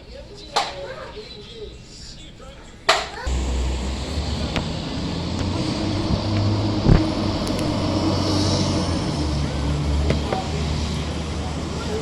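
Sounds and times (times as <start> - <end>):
diesel engine running: 3.3 - 12.0.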